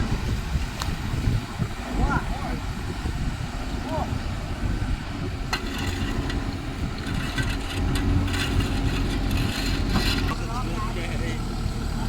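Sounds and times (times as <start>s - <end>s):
diesel engine running: 4.8s - 12.0s.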